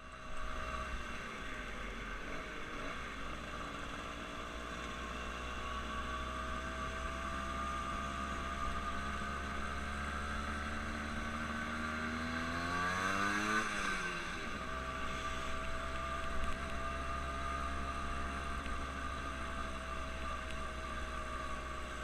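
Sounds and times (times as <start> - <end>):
engine running: 0.0 - 22.0
engine passing by: 4.7 - 19.8.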